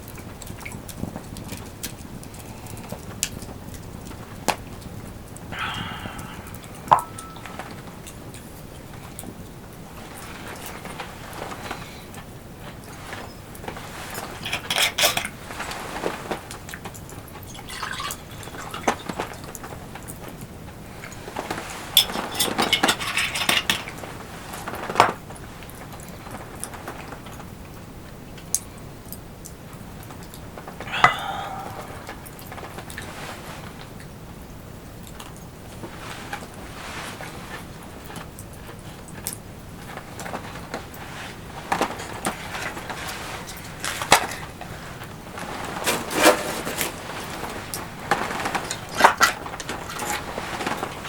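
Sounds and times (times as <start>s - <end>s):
dishes and utensils clinking: 5.6s - 8.0s, 14.1s - 15.4s, 17.6s - 19.5s, 22.0s - 24.0s, 30.9s - 32.1s, 45.7s - 47.4s.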